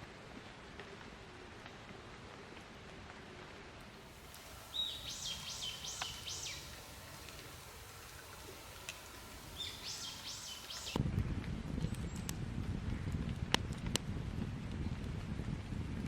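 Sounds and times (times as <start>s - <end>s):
songbird singing: 4.0s - 11.0s.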